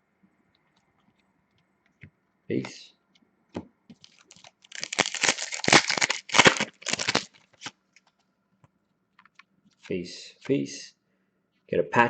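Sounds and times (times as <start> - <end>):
foil wrapper tearing and crinkling: 4.0 - 7.7.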